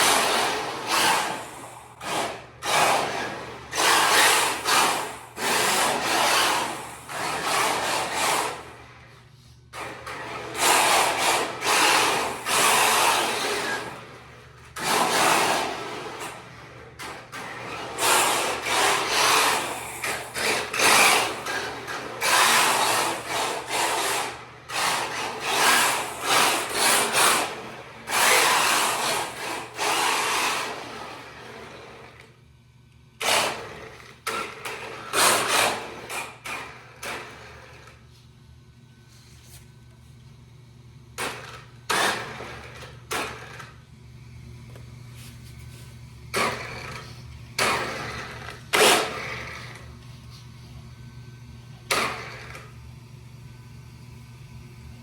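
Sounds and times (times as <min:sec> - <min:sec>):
rc car motor whirring: 0:00.0 - 0:08.8, 0:09.8 - 0:14.2, 0:14.8 - 0:16.7, 0:17.3 - 0:32.0, 0:33.2 - 0:38.0, 0:46.4 - 0:49.9.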